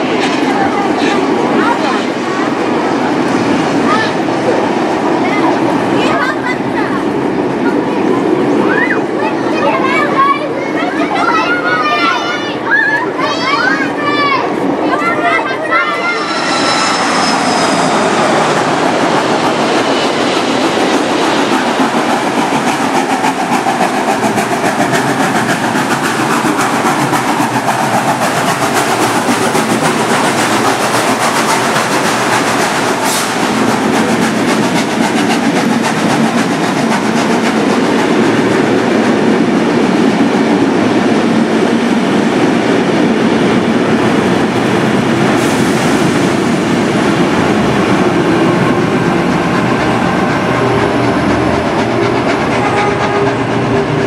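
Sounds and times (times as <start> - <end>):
steam train rushing: 0.0 - 54.0
wheels clickety-clack: 18.4 - 54.0.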